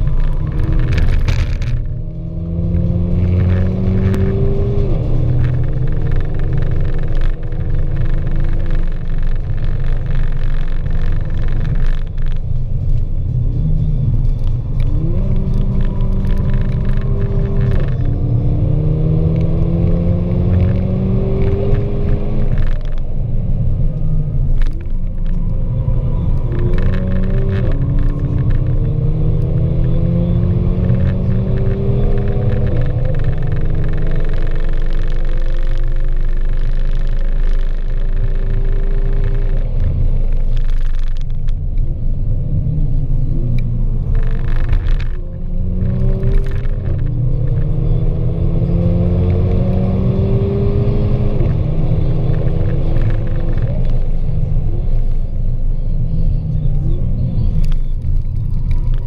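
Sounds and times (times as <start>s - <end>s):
car engine accelerating: 0.0s - 59.0s
road and tyre rumble: 0.0s - 59.0s.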